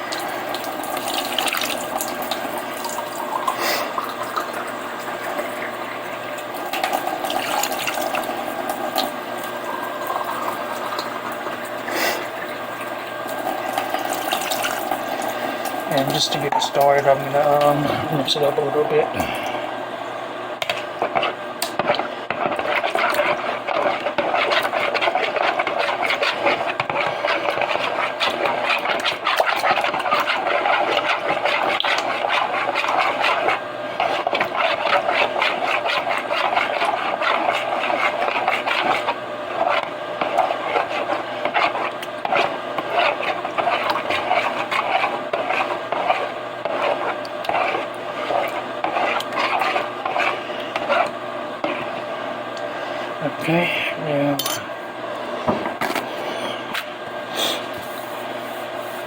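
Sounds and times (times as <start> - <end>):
utensil stirring in a bowl: 0.0 - 19.6, 20.6 - 55.4, 56.0 - 59.0.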